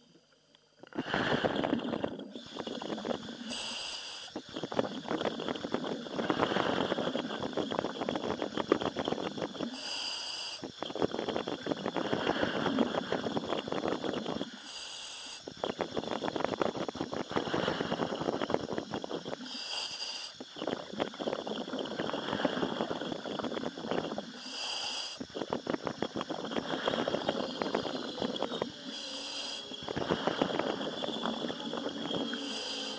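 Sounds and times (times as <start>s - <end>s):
demand valve hiss: 0.8s - 32.9s
bubbling exhalation: 0.9s - 9.9s, 10.7s - 14.6s, 15.5s - 19.7s, 20.4s - 24.6s, 25.2s - 32.9s.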